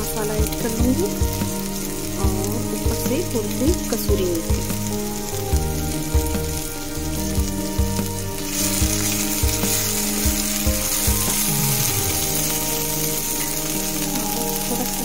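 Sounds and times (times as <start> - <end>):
masala sizzling in oil: 0.0 - 15.0.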